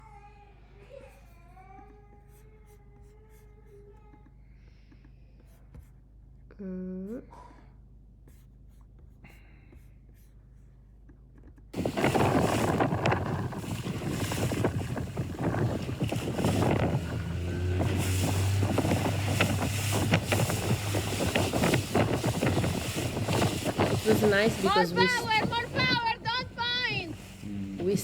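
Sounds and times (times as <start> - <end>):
low steady hum: 11.8 - 28.0
water rushing: 11.8 - 28.0
wind buffeting microphone: 11.8 - 28.0.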